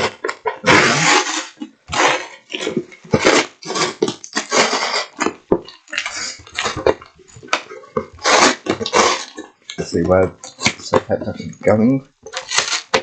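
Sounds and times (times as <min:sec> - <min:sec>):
sticky tape peeling and tearing: 0:00.0 - 0:06.9, 0:08.2 - 0:09.4, 0:12.3 - 0:13.0
cardboard rustling: 0:12.3 - 0:13.0.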